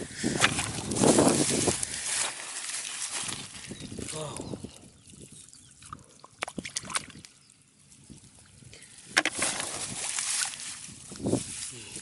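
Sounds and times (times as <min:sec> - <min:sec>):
muddy water stirred and splashed: 0:00.0 - 0:11.7
sharp water splash: 0:06.4 - 0:07.2, 0:09.3 - 0:10.7.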